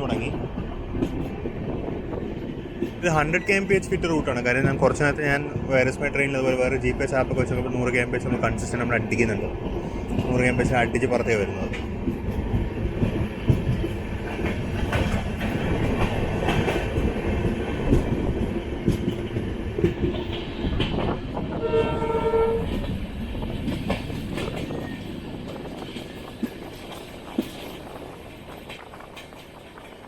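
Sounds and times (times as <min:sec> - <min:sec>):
train rumble with rail clatter: 0:00.0 - 0:30.0
train horn: 0:21.5 - 0:22.8.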